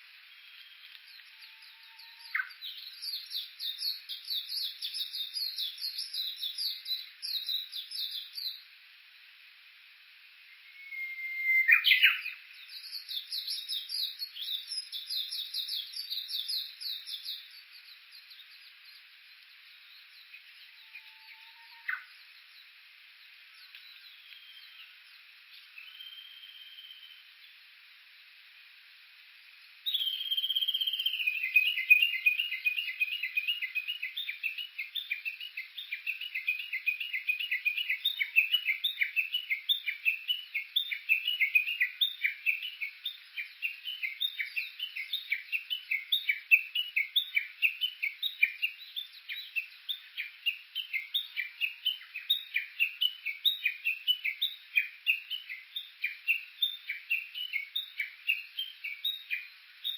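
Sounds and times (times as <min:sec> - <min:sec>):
bush warbler calling: 0:10.7 - 0:17.3.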